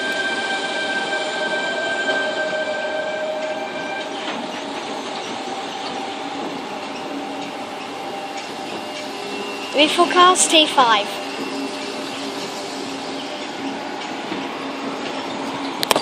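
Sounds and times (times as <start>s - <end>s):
electric train running: 0.0s - 16.0s
steady high-pitched tones: 0.0s - 16.0s.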